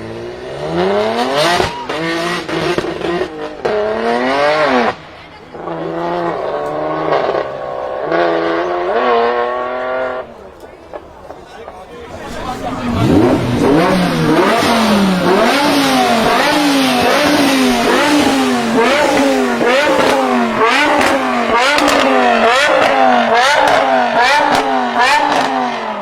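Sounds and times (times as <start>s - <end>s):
car engine revving: 0.0s - 11.3s, 12.0s - 26.0s
sharp exhaust cracks: 12.0s - 26.0s.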